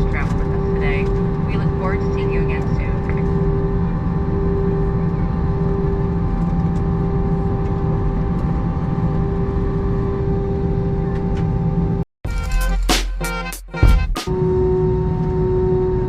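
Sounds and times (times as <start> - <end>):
constant droning hum: 0.0 - 12.0, 14.3 - 16.0
engine and airflow roar: 0.0 - 12.0, 14.2 - 16.0.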